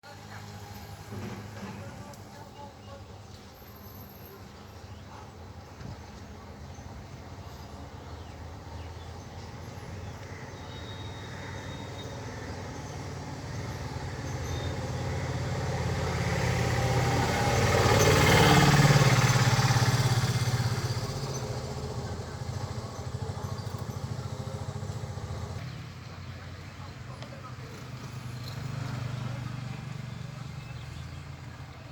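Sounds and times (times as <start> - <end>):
vehicle passing by: 7.3 - 31.9.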